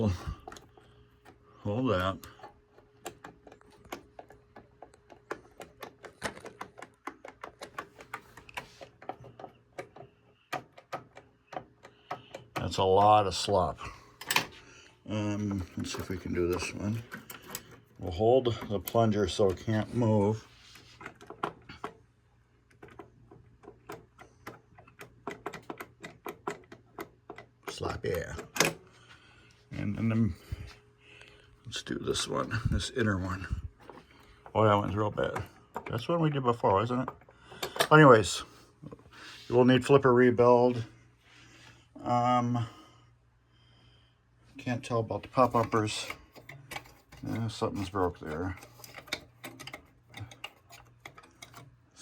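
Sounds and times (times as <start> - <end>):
low steady hum: 0.0 - 52.0
pinball flipper rattling clicks: 0.2 - 14.6, 15.6 - 22.0, 22.7 - 28.9, 45.4 - 52.0
pinball flipper clicking: 45.5 - 52.0.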